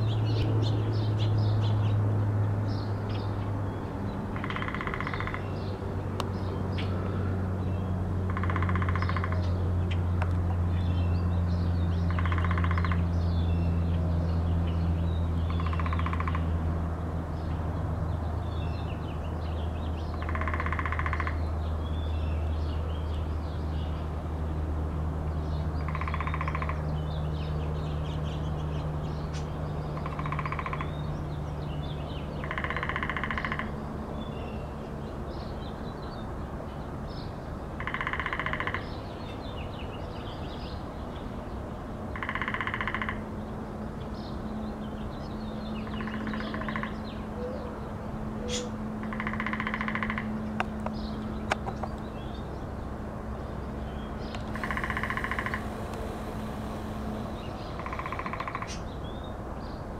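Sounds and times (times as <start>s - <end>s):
small birds chirping: 48.5s - 59.9s
steady low hum: 49.8s - 59.5s
buzzing noise bursts: 54.4s - 58.7s.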